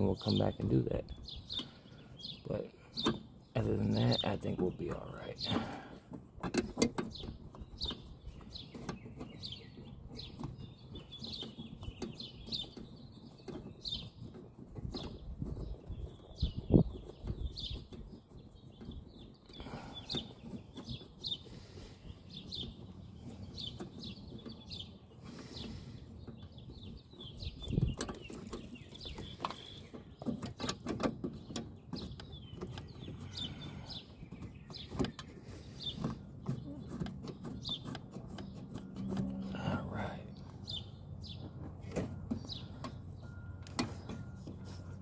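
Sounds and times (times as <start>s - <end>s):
small birds chirping: 0.0s - 45.0s
hand tools clicking and knocking: 17.0s - 39.7s.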